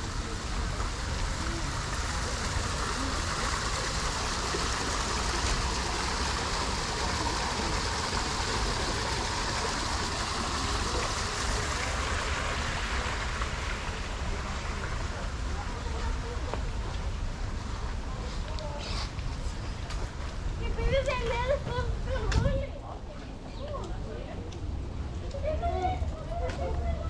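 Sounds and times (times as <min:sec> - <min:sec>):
running water rushing: 0:00.0 - 0:23.4.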